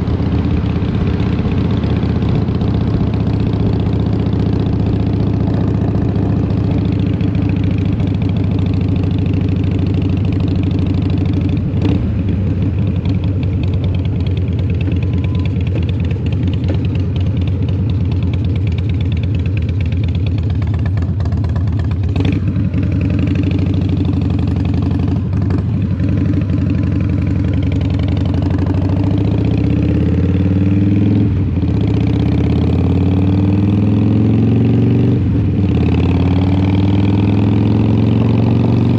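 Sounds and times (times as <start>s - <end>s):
motorcycle engine running: 0.0s - 38.9s
engine knocks: 13.6s - 21.9s.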